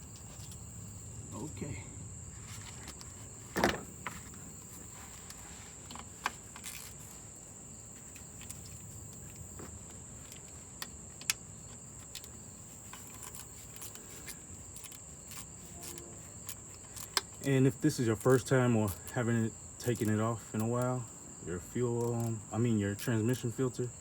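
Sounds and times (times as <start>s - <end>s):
socket ratchet clicking: 12.0s - 21.0s, 21.8s - 23.6s.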